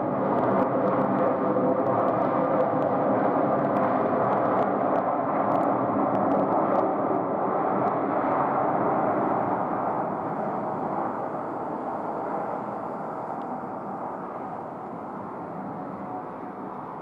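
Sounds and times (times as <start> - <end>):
jet engine rumble: 0.0 - 17.0.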